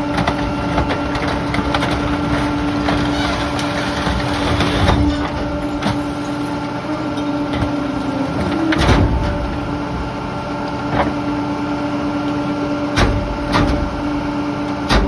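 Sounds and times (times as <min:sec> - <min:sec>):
garbage truck humming: 0:00.0 - 0:15.0
debris knocks and bangs: 0:13.0 - 0:14.0.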